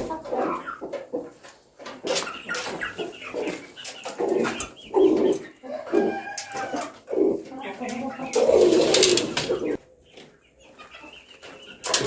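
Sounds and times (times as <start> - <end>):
pigeons cooing: 2.0 - 9.8.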